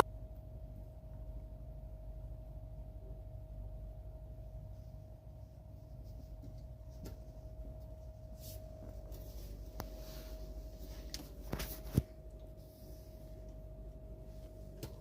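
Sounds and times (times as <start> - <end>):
steady hum: 0.0 - 15.0
faint scratching: 4.7 - 15.0.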